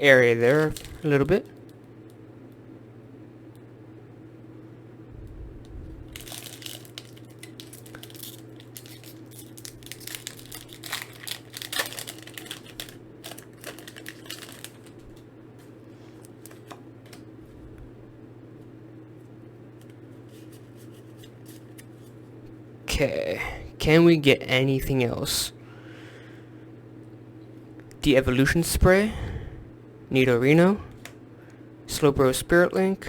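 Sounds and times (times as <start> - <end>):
foil wrappers crinkling and tearing: 0.2 - 1.5, 6.1 - 15.2.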